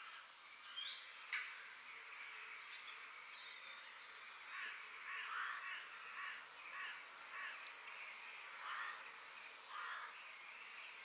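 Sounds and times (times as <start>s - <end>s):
steady background hiss: 0.0s - 11.0s
harsh rasping bird calls: 3.8s - 11.0s.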